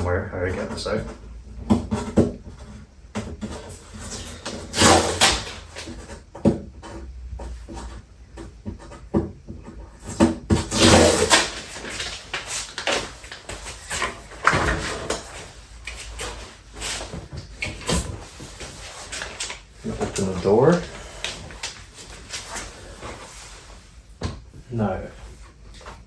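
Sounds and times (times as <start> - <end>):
cardboard box rustling and scraping: 1.7 - 9.1, 9.8 - 24.1.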